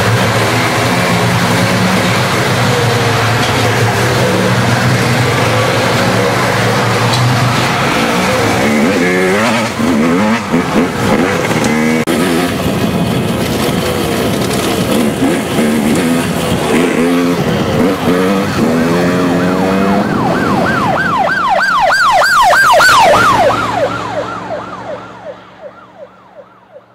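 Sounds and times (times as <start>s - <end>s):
engine noise: 0.0s - 26.9s
siren wailing: 0.6s - 11.8s, 17.8s - 26.9s.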